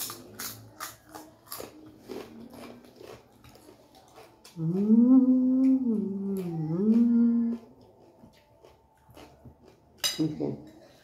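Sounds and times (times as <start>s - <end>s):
person humming: 4.6s - 7.7s.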